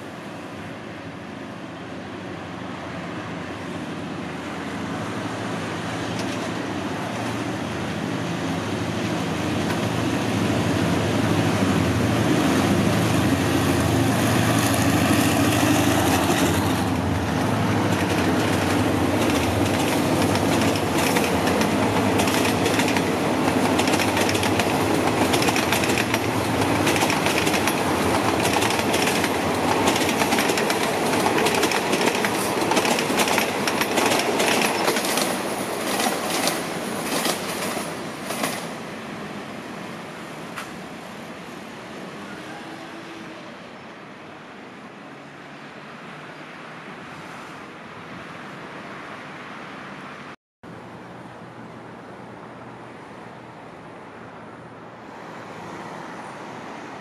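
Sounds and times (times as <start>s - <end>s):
diesel locomotive engine: 0.0s - 45.3s.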